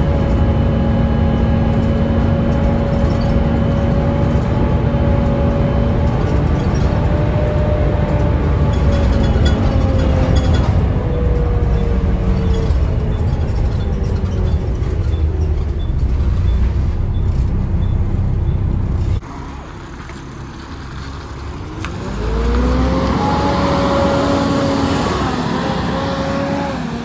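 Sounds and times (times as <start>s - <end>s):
transmission whine: 0.0s - 19.4s
bus diesel engine running: 0.0s - 27.0s.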